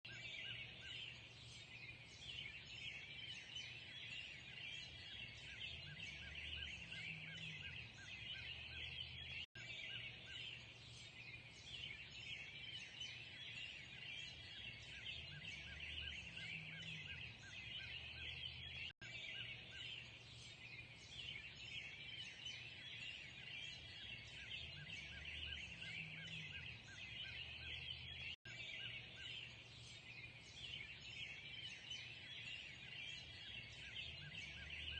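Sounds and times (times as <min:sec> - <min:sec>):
songbirds chirping and singing: 0:00.0 - 0:34.9.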